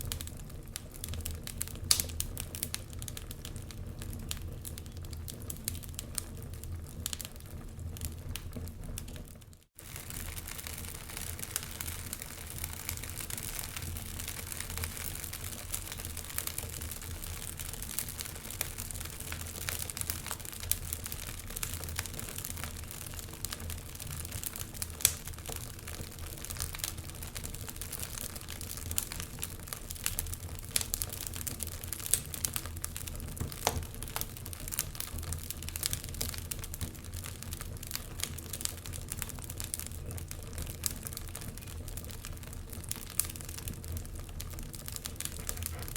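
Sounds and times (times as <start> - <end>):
fire hiss and rumble: 0.0 - 45.9
logs crackling and popping: 0.0 - 45.9.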